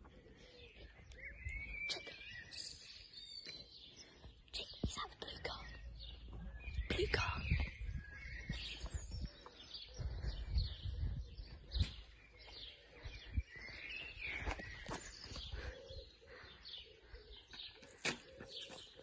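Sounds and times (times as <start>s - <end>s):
birds chirping: 0.0s - 19.0s
low rumble on microphone: 5.5s - 12.1s.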